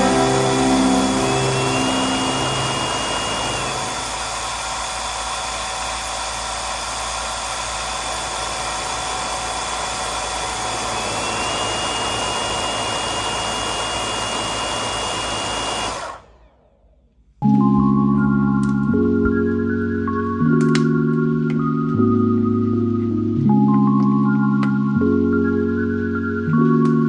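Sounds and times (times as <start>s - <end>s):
vacuum cleaner running: 0.0s - 16.2s.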